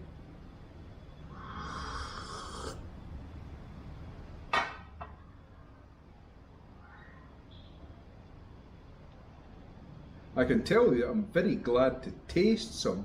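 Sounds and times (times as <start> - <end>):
person slurping coffee: 1.4 - 2.8.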